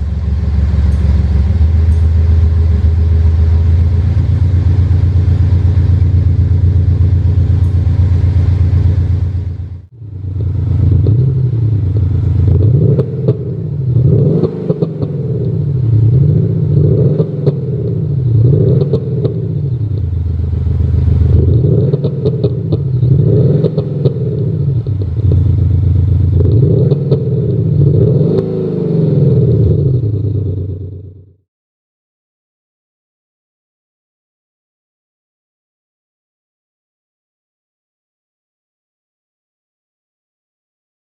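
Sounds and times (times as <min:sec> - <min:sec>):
synthetic exhaust note revving: 0:00.0 - 0:31.2
exhaust crackles and pops: 0:00.0 - 0:31.4.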